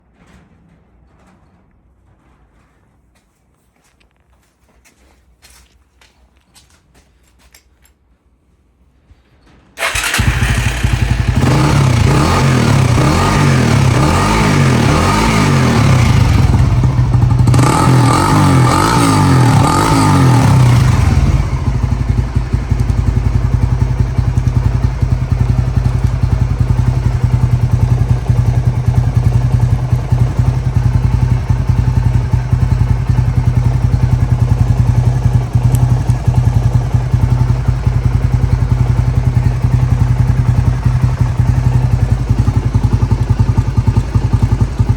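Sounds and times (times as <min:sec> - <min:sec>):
motorcycle engine revving and idling: 0:09.8 - 0:44.9.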